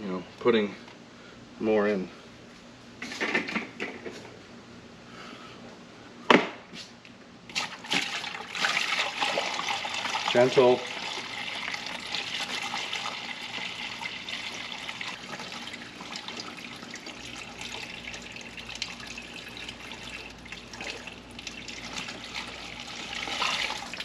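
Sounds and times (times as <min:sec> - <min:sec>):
water pouring through funnel: 0:07.5 - 0:24.0.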